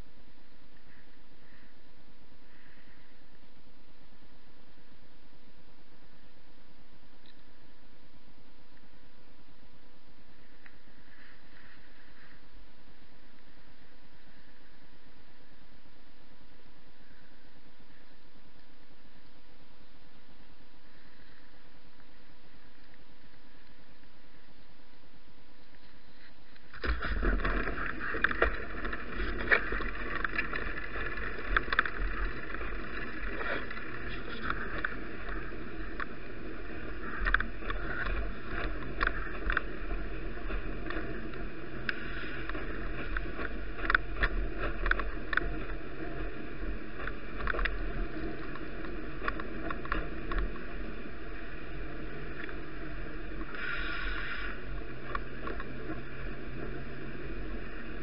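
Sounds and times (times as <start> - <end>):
bicycle tyres on wet road: 26.7 - 58.0
small clicks and rattles: 26.8 - 36.2, 37.0 - 46.2.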